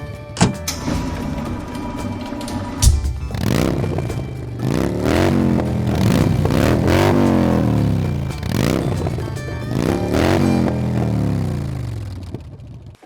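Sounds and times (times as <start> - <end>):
background music: 0.0 - 12.1
sharp thump: 0.4 - 4.6.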